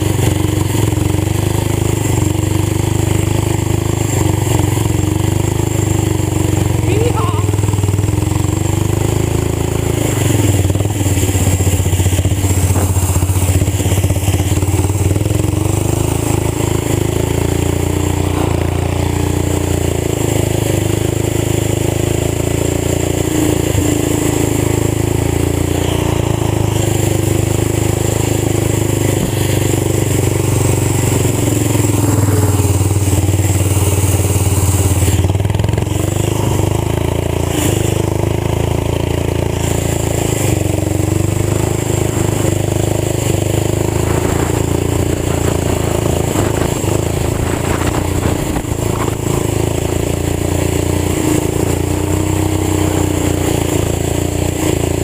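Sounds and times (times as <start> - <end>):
tractor engine running: 0.0 - 55.0
wind noise on microphone: 43.6 - 50.1.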